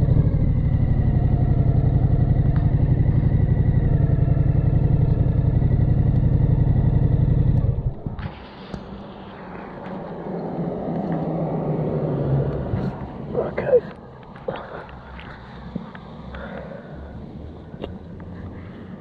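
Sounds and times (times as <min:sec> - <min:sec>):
motorcycle engine idling: 0:00.0 - 0:08.4.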